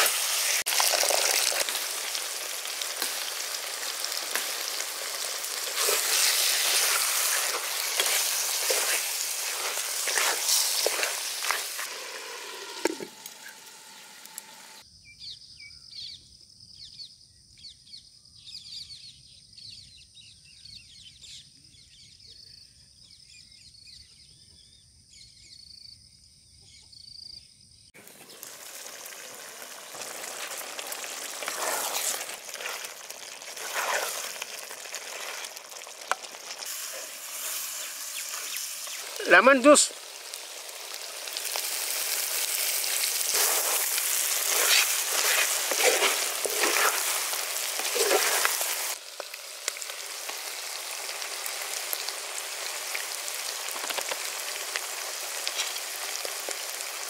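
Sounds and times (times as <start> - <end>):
curry sizzling in hot oil: 0.0 - 14.8, 28.0 - 57.0
small birds chirping: 3.2 - 49.0.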